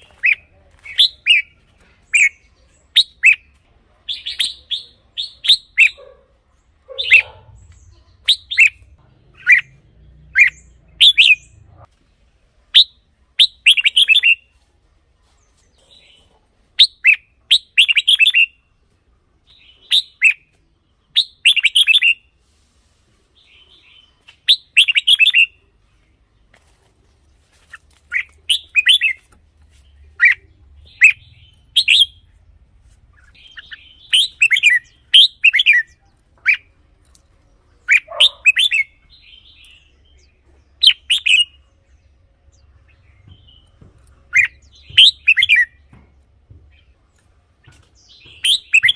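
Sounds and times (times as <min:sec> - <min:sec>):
bulbul singing whistled notes: 0:33.3 - 0:36.6, 0:48.2 - 0:48.9.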